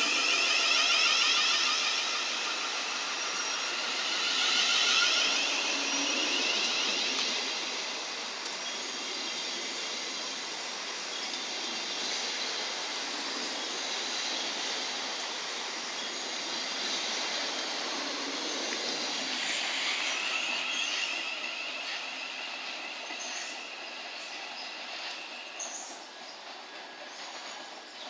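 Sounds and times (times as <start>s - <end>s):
high squeal: 0.0s - 27.8s
train wheels rushing on rail: 0.0s - 28.0s.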